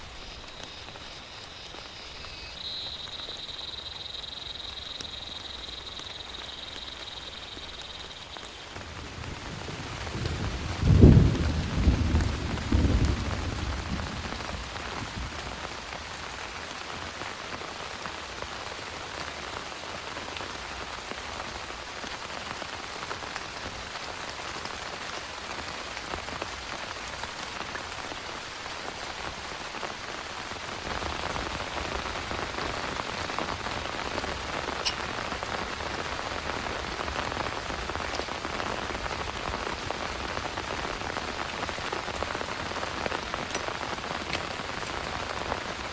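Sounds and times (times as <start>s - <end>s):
heavy rain pouring: 0.0s - 45.9s
thunder rumbling: 8.9s - 15.6s.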